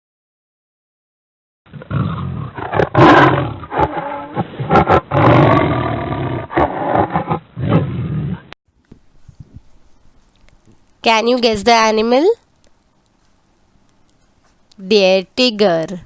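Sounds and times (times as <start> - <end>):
tiger roaring: 1.7 - 8.5.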